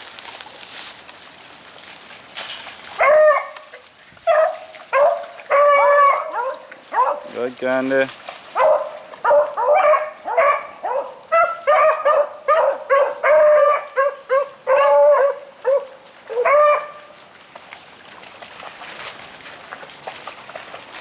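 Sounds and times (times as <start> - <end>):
hounds baying: 3.0 - 7.4, 8.5 - 17.0.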